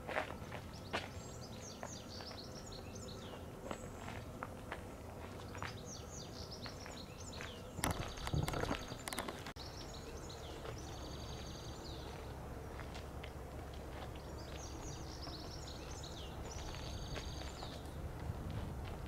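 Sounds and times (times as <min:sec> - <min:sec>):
low background rumble: 0:00.0 - 0:19.0
small birds chirping: 0:00.1 - 0:04.5, 0:05.1 - 0:19.0
knocks and clicks: 0:07.8 - 0:09.6.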